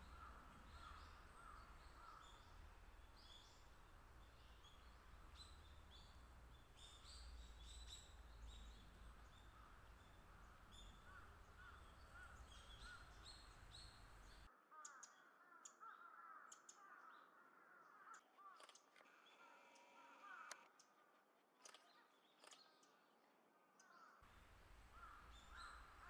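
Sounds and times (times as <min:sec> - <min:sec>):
low background rumble: 0:00.0 - 0:14.5
faint bird calls: 0:00.0 - 0:17.1, 0:24.3 - 0:26.0.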